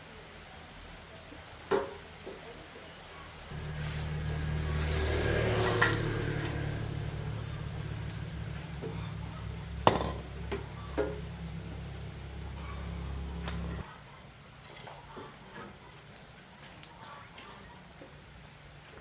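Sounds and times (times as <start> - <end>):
welding transformer hum: 3.5 - 13.8.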